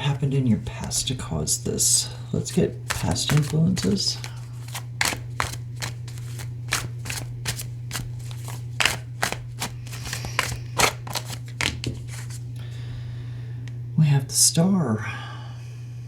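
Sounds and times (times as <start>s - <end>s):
steady low hum: 0.0s - 16.0s
cards being shuffled: 0.5s - 1.2s, 2.4s - 12.6s.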